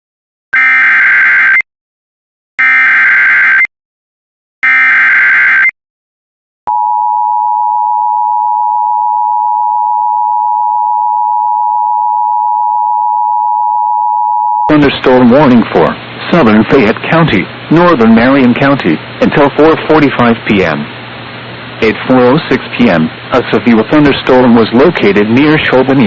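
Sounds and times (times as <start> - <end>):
loud steady electronic alert tone: 0.6 - 1.6, 2.6 - 3.7, 4.6 - 5.7.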